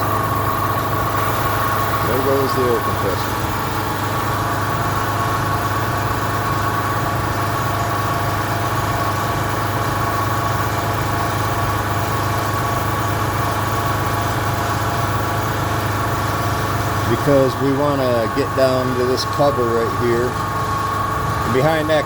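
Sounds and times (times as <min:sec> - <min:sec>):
air compressor humming with whine: 0:00.0 - 0:22.0.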